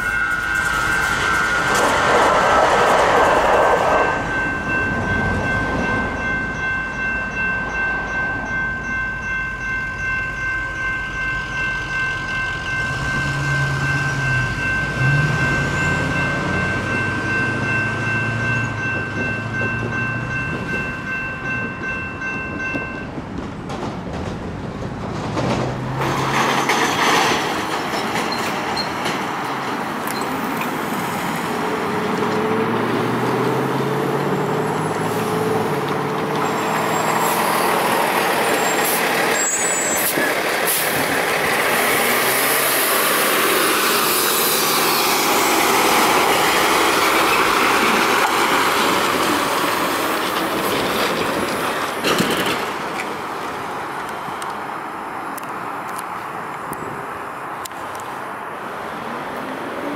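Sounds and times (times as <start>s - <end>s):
freight train rumbling: 0.0s - 59.9s.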